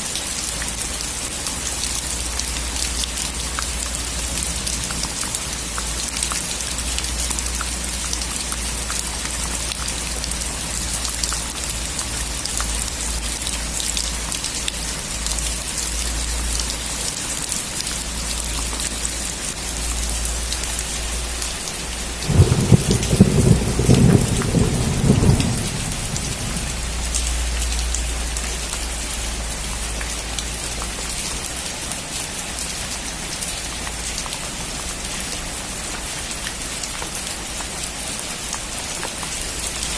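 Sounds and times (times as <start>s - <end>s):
steady rain on surfaces: 0.0s - 39.9s
crackling thunder rumble: 22.2s - 27.6s.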